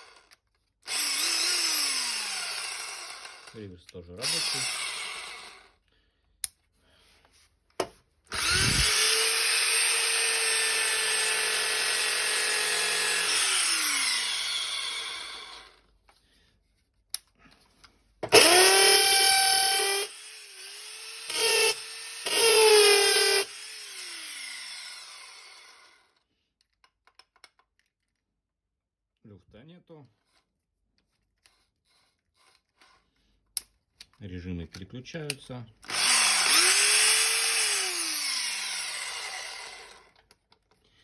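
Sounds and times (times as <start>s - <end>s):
drill motor whining: 0.0s - 3.6s, 4.2s - 5.7s, 8.3s - 15.8s, 18.3s - 26.1s, 35.8s - 40.2s
drill clicks: 0.0s - 5.7s, 8.3s - 15.8s, 18.2s - 25.9s, 34.8s - 40.8s.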